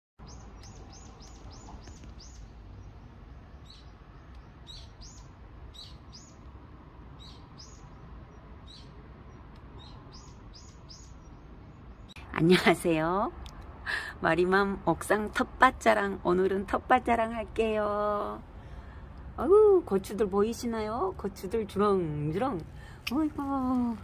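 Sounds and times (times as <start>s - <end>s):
small bird chirping: 0.2s - 12.2s.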